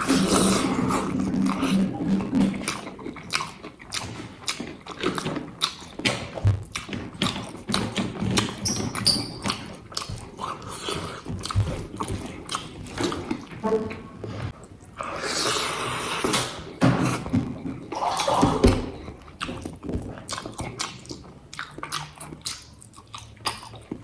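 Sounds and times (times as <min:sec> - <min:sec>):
person chewing crunchy food: 0:00.0 - 0:13.6, 0:14.2 - 0:24.0
wet mouth clicks: 0:19.0 - 0:24.0.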